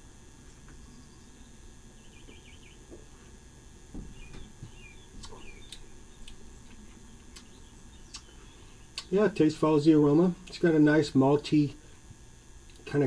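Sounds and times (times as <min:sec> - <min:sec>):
faint bird chirps: 0:00.8 - 0:02.9, 0:04.1 - 0:06.4, 0:07.0 - 0:09.2.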